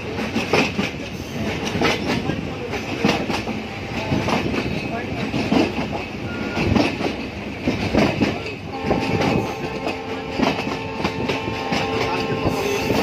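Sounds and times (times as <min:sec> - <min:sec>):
train wheels clattering: 0:00.0 - 0:13.0
train horn: 0:08.6 - 0:13.0.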